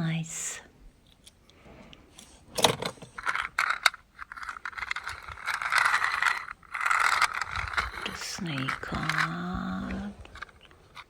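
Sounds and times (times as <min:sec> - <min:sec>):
toy cars clicking and rattling: 0:02.2 - 0:11.0
toy cars scraping: 0:02.2 - 0:11.0.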